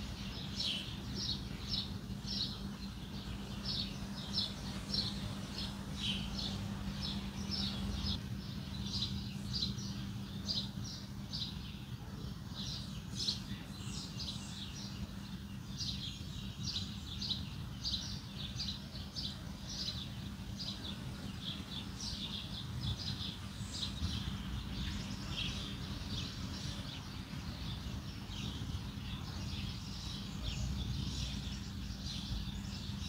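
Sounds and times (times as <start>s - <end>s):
low rumble and hum: 0.0s - 33.0s
small birds chirping: 0.0s - 33.0s.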